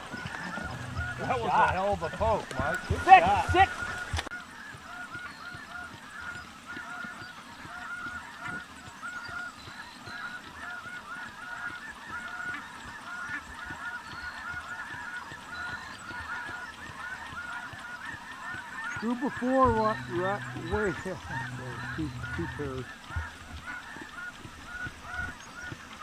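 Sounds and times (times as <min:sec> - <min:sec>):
snow geese honking: 0:00.0 - 0:06.2, 0:06.8 - 0:07.2, 0:10.1 - 0:26.0.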